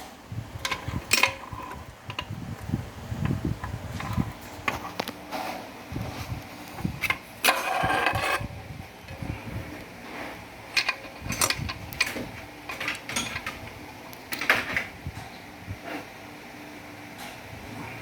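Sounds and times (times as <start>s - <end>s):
metal parts scraping rattle: 0.6s - 2.3s, 7.0s - 9.3s, 10.1s - 14.9s
sharp metallic knocks and clinks: 10.8s - 13.6s.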